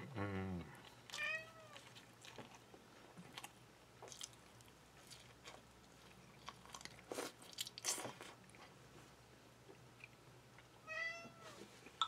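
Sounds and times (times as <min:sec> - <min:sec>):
person chewing: 0:00.6 - 0:08.7.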